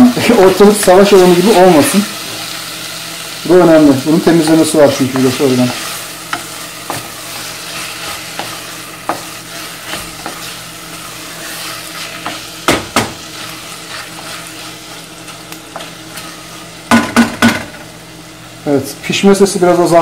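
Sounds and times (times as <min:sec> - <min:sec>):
tomatoes sizzling in a pot: 0:00.0 - 0:20.0
wooden spoon scraping a pot: 0:04.9 - 0:12.6, 0:13.2 - 0:16.7.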